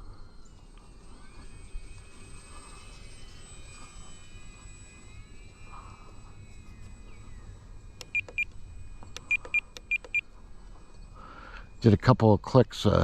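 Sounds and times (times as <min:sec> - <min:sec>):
electric motor whine: 0:00.0 - 0:12.1
short high transmitter beeps: 0:07.9 - 0:10.3.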